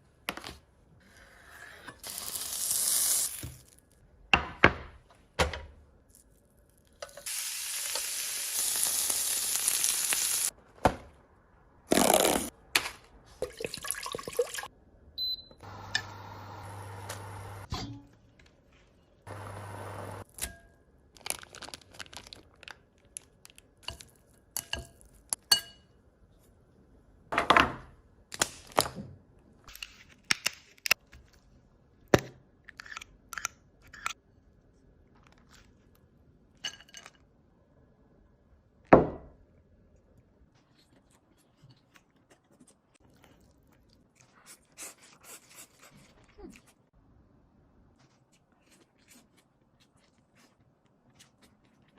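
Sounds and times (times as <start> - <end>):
crunching and chewing: 40.6 - 46.8, 48.0 - 51.9.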